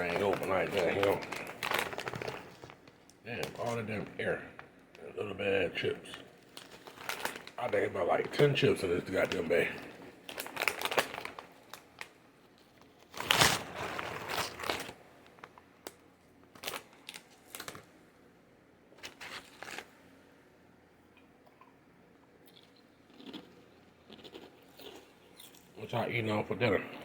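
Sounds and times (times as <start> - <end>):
chips crunching: 0.0 - 4.2, 6.4 - 12.1, 22.5 - 25.6
chip bag crinkling: 0.0 - 17.9, 19.0 - 20.0.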